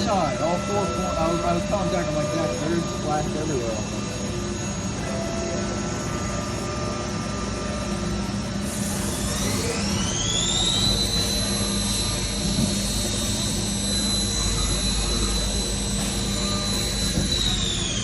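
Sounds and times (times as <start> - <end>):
lathe spindle whine: 0.0 - 18.0
low machine hum: 0.0 - 18.0.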